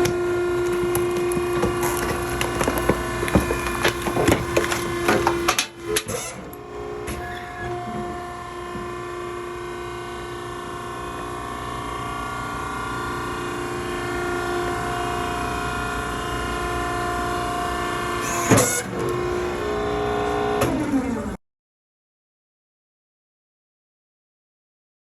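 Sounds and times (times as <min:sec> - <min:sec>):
hydraulic power unit whine: 0:00.0 - 0:21.4.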